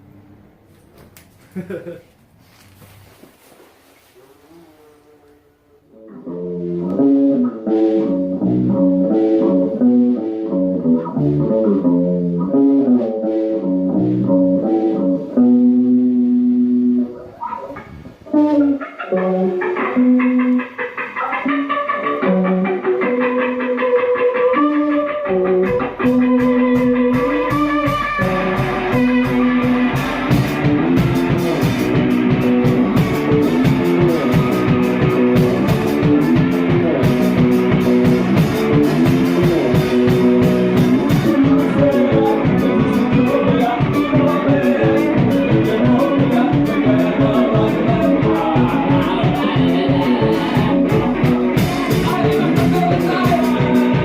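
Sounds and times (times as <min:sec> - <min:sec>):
electric guitar held notes: 0:05.3 - 0:54.0
drums steady beat: 0:25.4 - 0:54.0.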